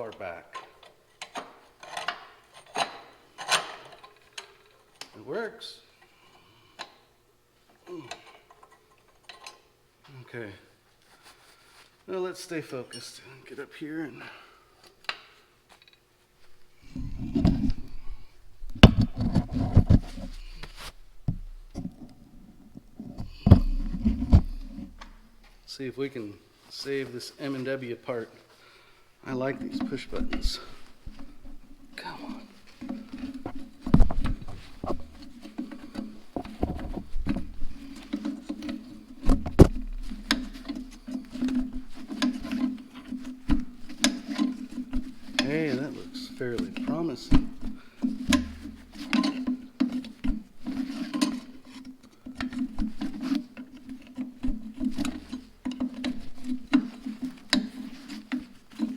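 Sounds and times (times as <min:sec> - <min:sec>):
steady low hum: 0:16.4 - 0:26.1, 0:29.1 - 0:49.0
low rumbling handling noise: 0:16.5 - 0:25.7, 0:29.7 - 0:49.1
knocks and bumps: 0:16.8 - 0:22.1, 0:22.7 - 0:25.6, 0:32.7 - 0:45.7, 0:46.4 - 0:49.4.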